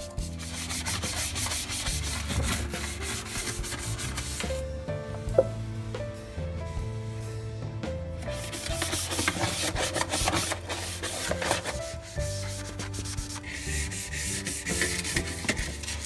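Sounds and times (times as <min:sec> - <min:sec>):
scrubbing strokes: 0:00.0 - 0:04.6, 0:08.3 - 0:16.0
soft background music: 0:00.0 - 0:16.0.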